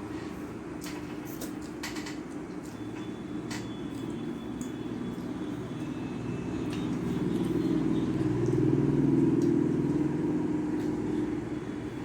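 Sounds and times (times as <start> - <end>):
vehicle engine passing by: 6.1 - 11.4.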